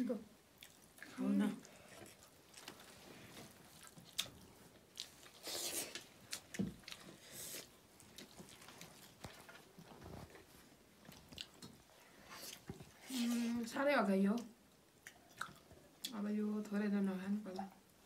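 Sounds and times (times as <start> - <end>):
people chewing meat: 0.5 - 13.1, 14.4 - 16.2.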